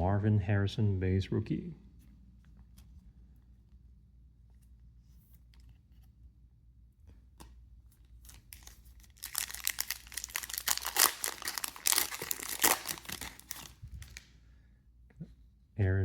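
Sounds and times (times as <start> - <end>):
wrapper tearing and crinkling: 8.2 - 14.2.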